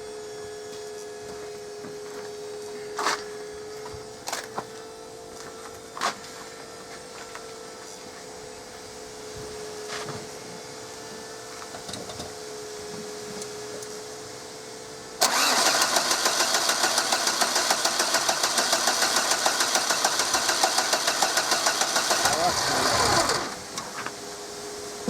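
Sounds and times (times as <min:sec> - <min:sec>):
diesel engine cranking: 0:15.2 - 0:24.0.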